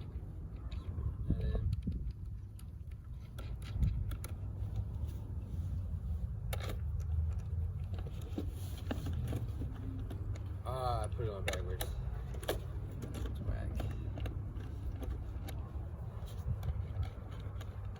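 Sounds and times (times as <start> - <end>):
wind rumbling on microphone: 0.0 - 6.5.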